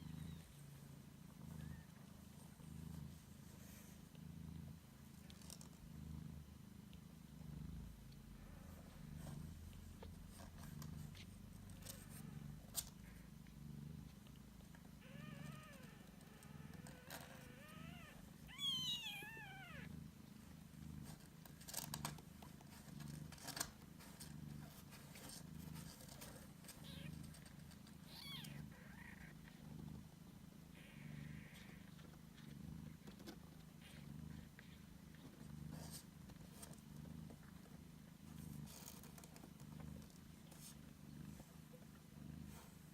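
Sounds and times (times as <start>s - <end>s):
cat purring: 0.0s - 42.9s
kitten mewing: 15.0s - 19.9s, 30.8s - 31.9s.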